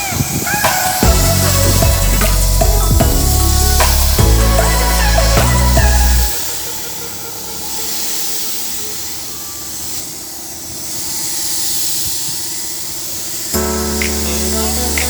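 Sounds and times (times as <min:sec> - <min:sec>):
paint spray gun hissing: 0:06.0 - 0:15.0.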